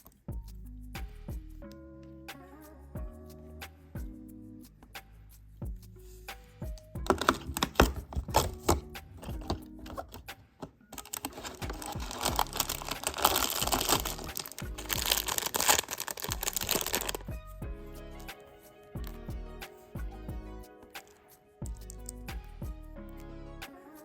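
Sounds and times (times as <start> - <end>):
background music: 0.0 - 24.0
plastic pieces clicking and rattling: 11.0 - 17.2
plastic bag crinkling: 11.0 - 17.3.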